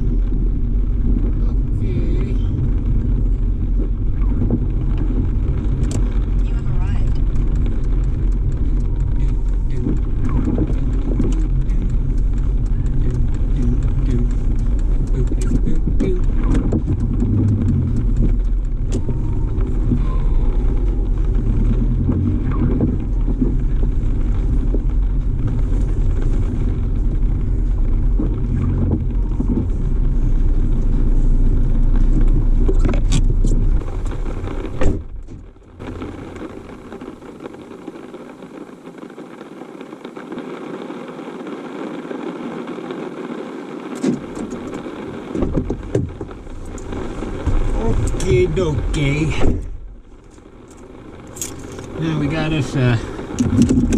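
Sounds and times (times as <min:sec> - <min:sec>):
car engine rumble: 0:00.0 - 0:53.9
clicks: 0:04.2 - 0:23.6.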